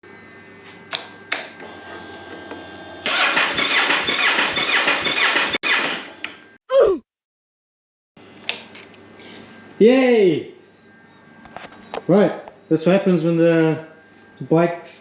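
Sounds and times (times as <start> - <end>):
electric starter cranking engine: 1.6 - 6.4.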